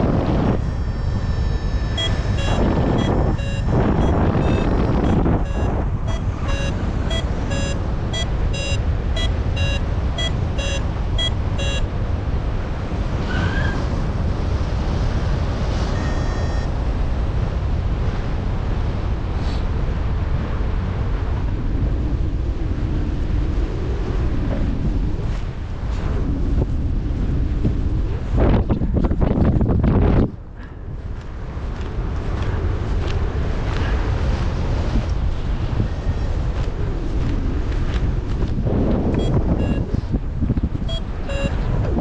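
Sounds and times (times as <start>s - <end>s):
variometer beeping: 0.0s - 11.9s, 15.9s - 16.8s, 35.6s - 36.6s, 39.1s - 40.0s, 40.6s - 41.9s
wind rushing over microphone: 0.0s - 42.0s.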